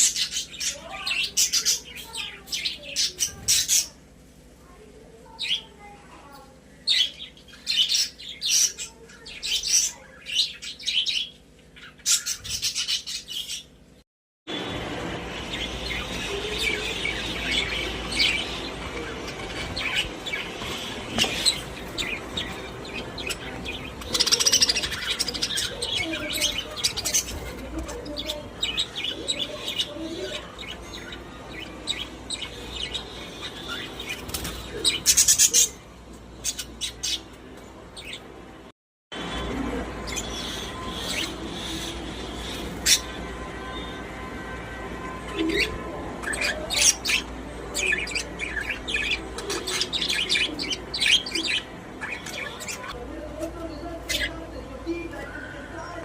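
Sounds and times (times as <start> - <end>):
budgerigars chirping: 15.5 - 35.8, 40.0 - 43.2.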